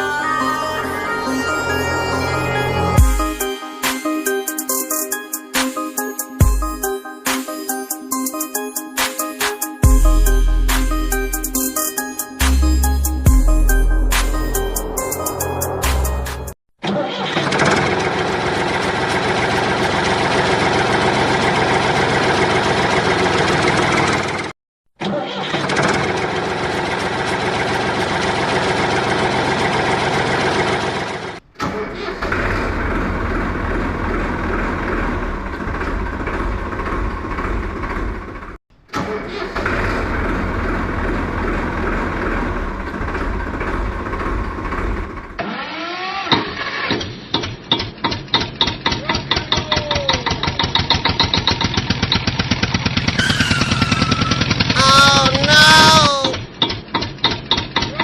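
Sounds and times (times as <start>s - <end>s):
tractor engine chugging: 25.6s - 38.6s, 47.7s - 57.9s.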